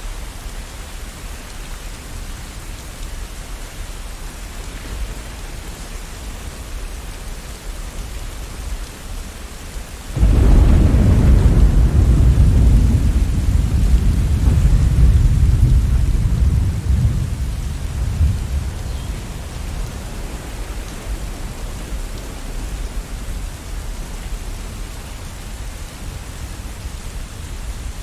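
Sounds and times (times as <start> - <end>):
steady rain: 0.0 - 28.0
deep rumble of thunder: 10.2 - 26.2.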